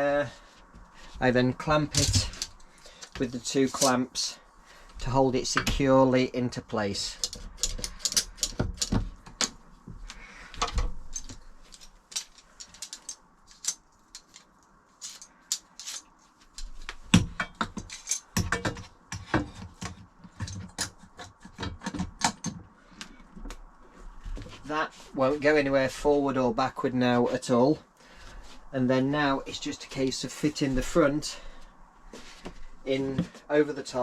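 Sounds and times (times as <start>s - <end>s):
metal clamps clicking and rattling: 1.9s - 4.0s, 7.1s - 9.6s, 10.6s - 16.1s, 17.4s - 19.3s.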